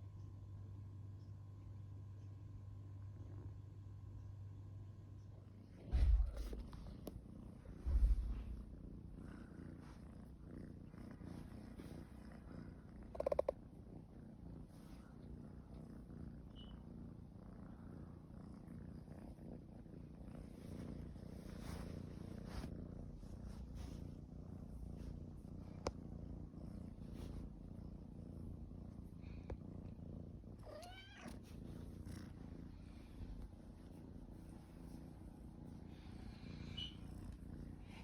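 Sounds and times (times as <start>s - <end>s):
cat purring: 0.0s - 38.0s
low thump: 5.8s - 7.0s, 7.6s - 8.7s.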